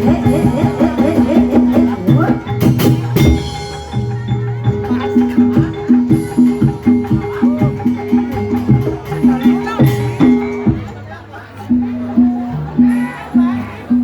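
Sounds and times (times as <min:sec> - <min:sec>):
drum strokes: 0:00.0 - 0:11.1
sharp percussion strikes: 0:00.0 - 0:11.1
pitched percussion music: 0:00.0 - 0:14.0.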